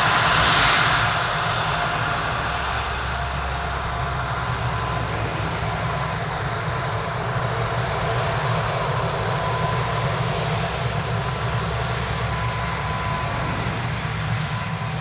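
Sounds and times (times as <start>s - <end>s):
aircraft engines rumbling: 0.0s - 15.0s.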